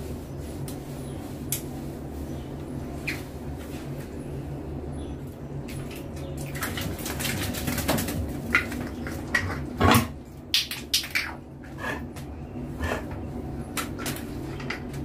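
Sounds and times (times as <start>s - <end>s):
steady low hum: 0.0s - 15.0s
water splashes and knocks: 5.7s - 11.4s.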